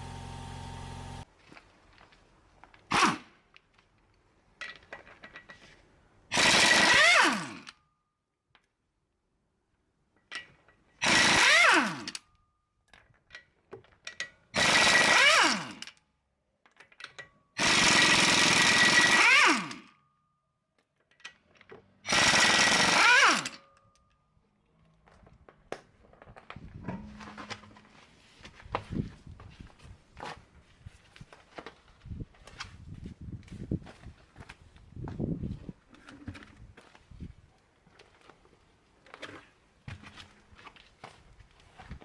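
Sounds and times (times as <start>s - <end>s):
air impact wrench hammering: 17.6s - 19.8s, 22.1s - 23.5s.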